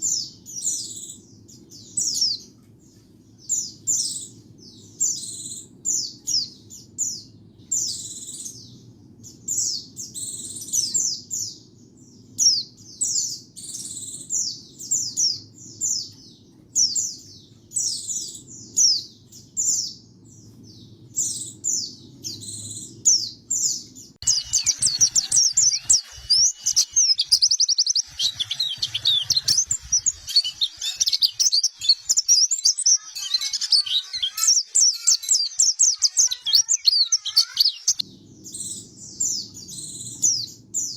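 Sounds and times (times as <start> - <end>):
bird singing high sweeping notes: 20.8 - 40.9
bird rapid twittering: 24.2 - 38.0.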